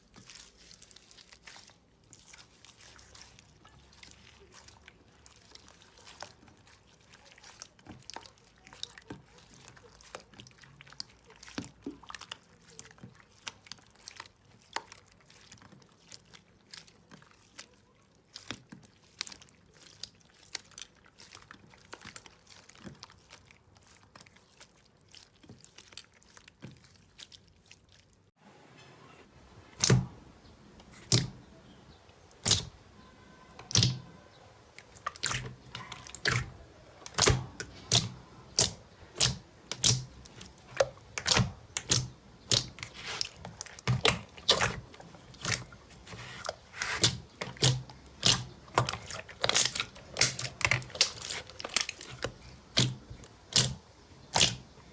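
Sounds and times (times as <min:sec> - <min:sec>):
sharp slime pops: 0:32.4 - 0:32.7, 0:33.7 - 0:34.0, 0:37.0 - 0:40.1, 0:52.7 - 0:54.6
slime squeezed with wet clicks: 0:33.6 - 0:34.0, 0:46.8 - 0:54.6.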